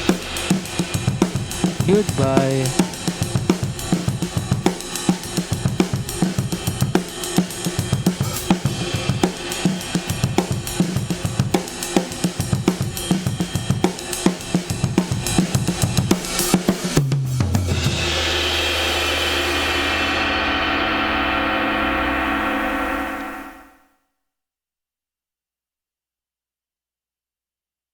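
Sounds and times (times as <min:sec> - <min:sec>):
drum kit playing busy beat: 0:00.0 - 0:19.6
low ringing tone: 0:21.3 - 0:23.8.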